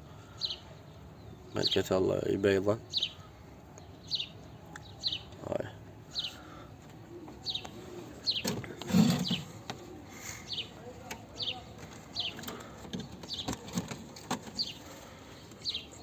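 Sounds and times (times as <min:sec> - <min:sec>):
high falling bird chirps: 0:03.9 - 0:06.6
pigeon cooing: 0:06.2 - 0:10.7.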